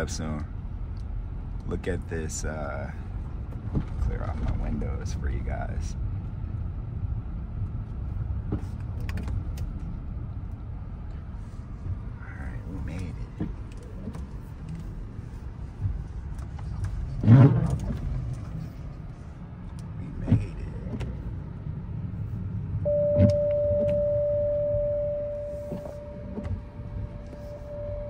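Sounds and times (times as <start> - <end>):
steady electronic tone: 22.8 - 28.0.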